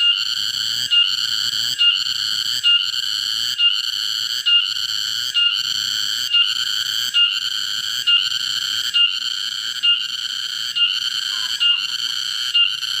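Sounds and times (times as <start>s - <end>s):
insect high-pitched buzzing: 0.0s - 13.0s.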